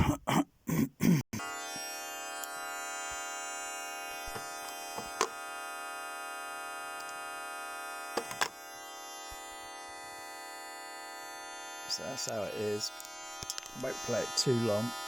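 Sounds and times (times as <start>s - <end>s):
multi-tone test signal: 1.5s - 15.0s.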